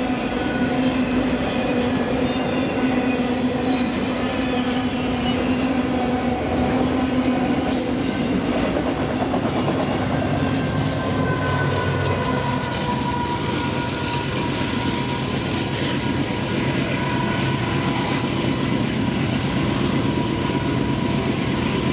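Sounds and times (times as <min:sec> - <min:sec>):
high wheel squeal: 0:00.0 - 0:08.6, 0:10.6 - 0:17.9
diesel locomotive engine running: 0:00.0 - 0:21.9.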